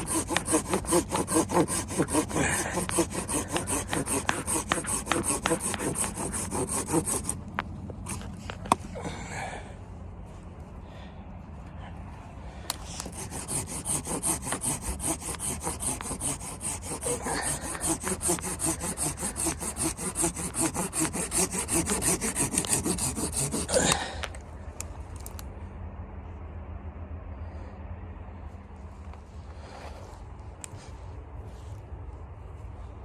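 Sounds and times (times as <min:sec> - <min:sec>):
hand saw cutting wood: 0:00.0 - 0:07.4, 0:08.0 - 0:08.8, 0:12.7 - 0:24.2.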